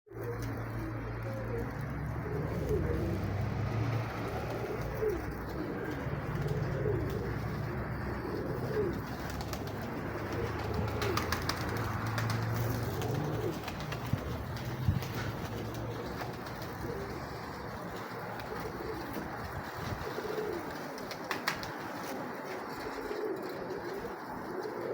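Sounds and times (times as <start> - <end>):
pigeons cooing: 0.1 - 24.9
wind on microphone: 13.6 - 15.5.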